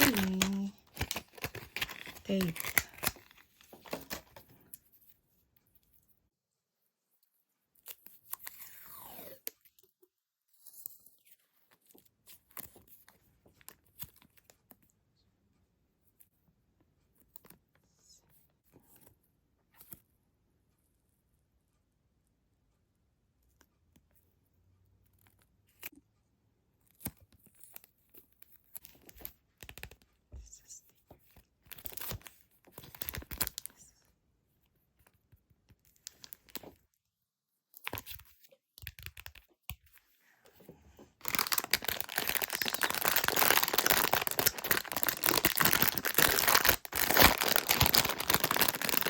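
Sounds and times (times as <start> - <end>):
stationery packaging crinkling: 0.0 - 4.5, 31.7 - 33.8, 41.2 - 49.0.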